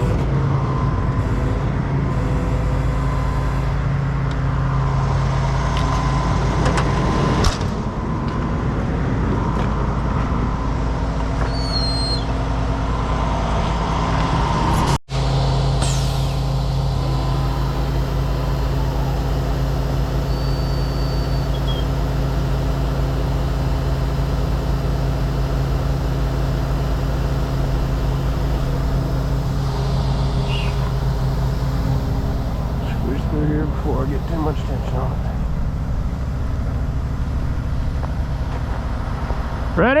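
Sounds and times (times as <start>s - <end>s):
truck diesel engine running: 0.0s - 40.0s
short sharp burst: 15.8s - 19.5s.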